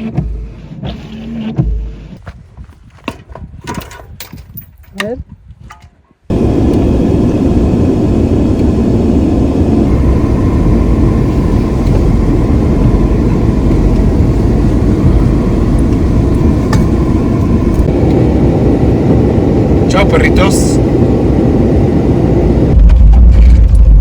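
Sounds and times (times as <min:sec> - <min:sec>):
road noise: 0:06.3 - 0:23.6
car engine: 0:06.3 - 0:24.0.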